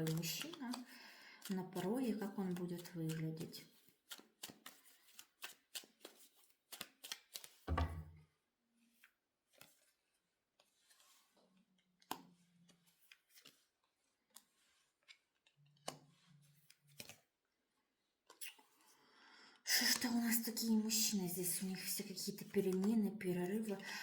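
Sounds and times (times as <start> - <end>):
cards shuffled and laid down: 4.0 - 8.1, 12.0 - 17.3
low thump: 7.7 - 8.1.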